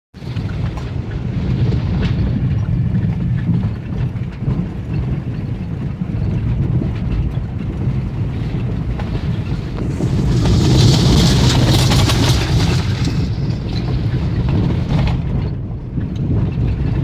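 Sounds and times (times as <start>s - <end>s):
car engine and tyres rumbling: 0.2s - 17.0s
car rattling and knocking: 7.3s - 15.6s.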